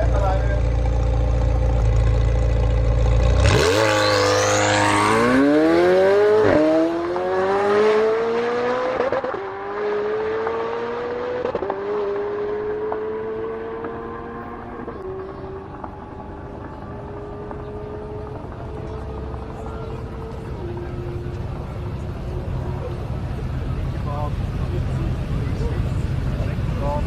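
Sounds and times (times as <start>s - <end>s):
sports car engine idling: 0.0s - 3.5s, 14.1s - 27.0s
car accelerating through gears: 3.0s - 23.0s.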